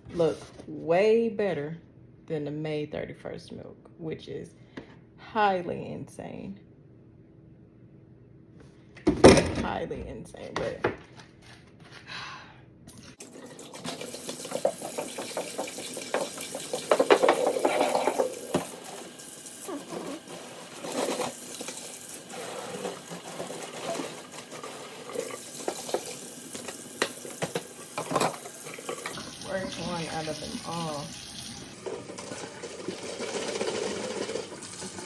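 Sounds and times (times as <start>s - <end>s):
liquid pouring into a sink: 13.2s - 35.0s.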